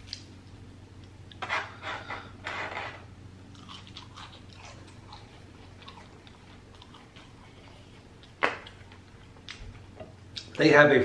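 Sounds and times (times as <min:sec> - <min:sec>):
crunchy chewing of fries: 0:03.4 - 0:09.6.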